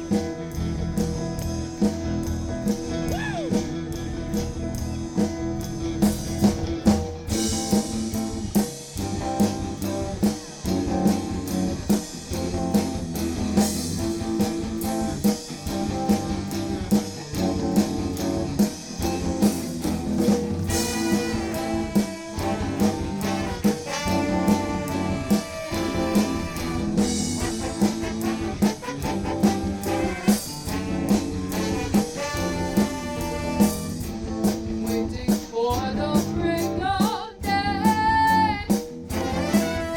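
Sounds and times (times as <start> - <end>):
drum kit beat: 0.0 - 39.9
live soul band playing: 0.0 - 39.9
brass horn section: 20.7 - 34.2, 39.1 - 39.9.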